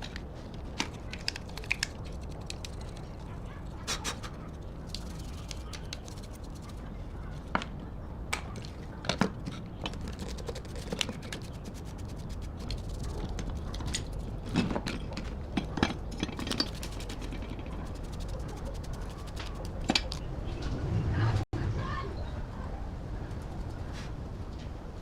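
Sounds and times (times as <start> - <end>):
hand tools clicking on metal: 9.9 - 20.2.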